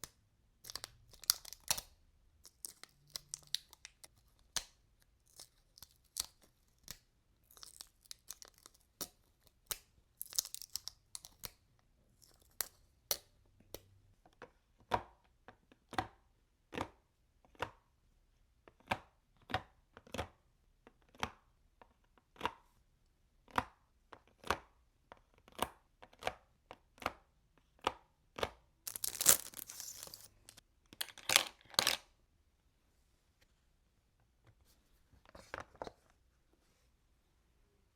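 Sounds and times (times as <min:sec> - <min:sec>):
packaging rustling and tearing: 0:28.9 - 0:32.0.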